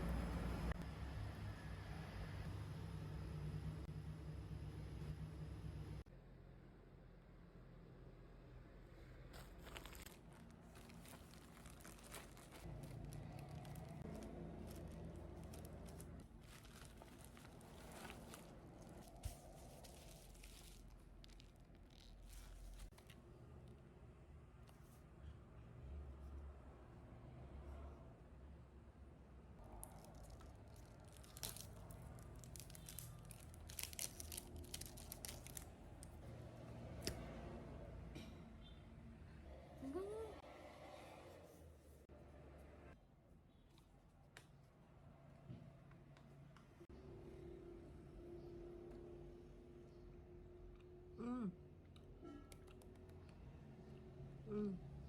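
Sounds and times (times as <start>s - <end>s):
rustling and crinkling: 9.3s - 23.2s, 29.8s - 36.3s.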